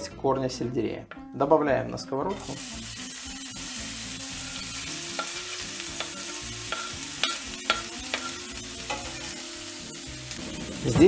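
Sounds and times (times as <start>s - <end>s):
vegetables sizzling in a frying pan: 2.4s - 11.0s.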